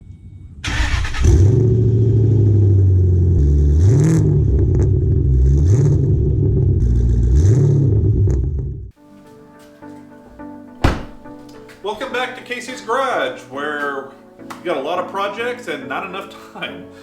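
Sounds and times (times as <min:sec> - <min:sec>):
car engine idling and revving: 0:00.8 - 0:08.9.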